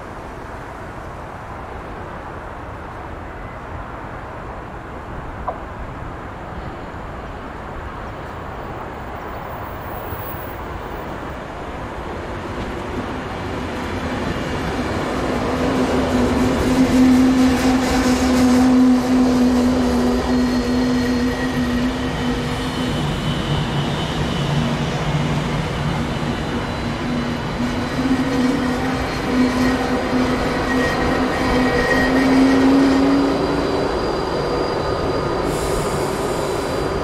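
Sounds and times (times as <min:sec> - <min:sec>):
train passing: 0:00.0 - 0:37.0.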